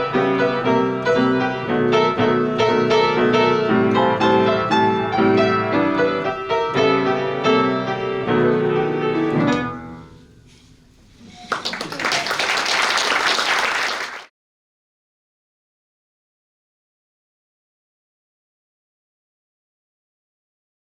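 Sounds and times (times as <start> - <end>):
piano playing: 0.0 - 10.0
applause: 11.5 - 14.3.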